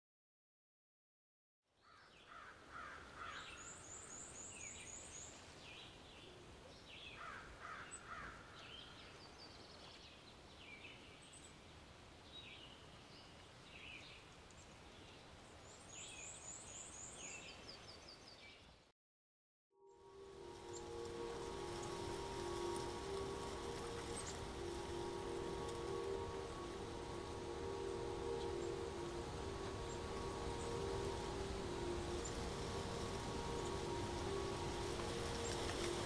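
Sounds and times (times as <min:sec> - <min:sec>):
steady hiss: 0:20.0 - 0:36.0
birds calling and chirping: 0:20.4 - 0:36.0.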